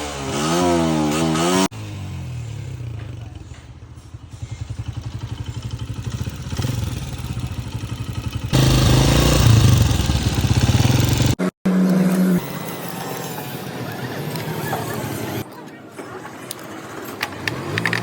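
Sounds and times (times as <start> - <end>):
motorcycle engine running unevenly: 1.7 - 12.4.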